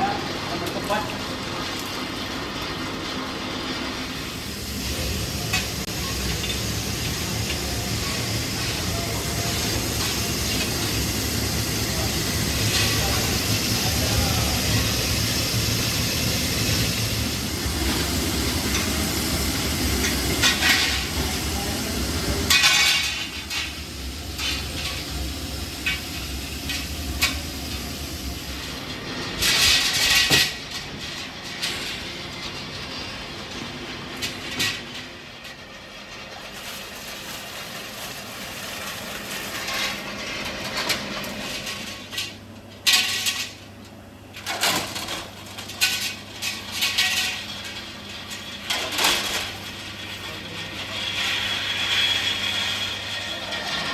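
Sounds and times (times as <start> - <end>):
workshop machinery droning: 0.0 - 53.9.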